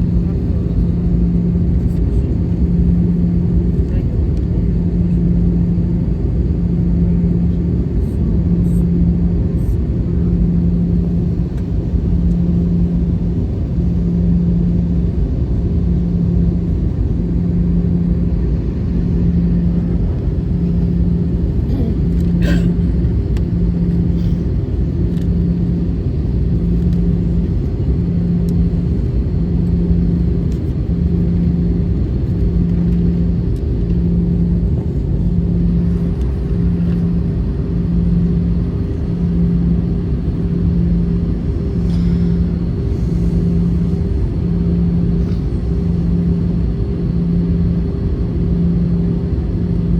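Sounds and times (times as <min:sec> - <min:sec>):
jet engine cabin drone: 0:00.0 - 0:49.9.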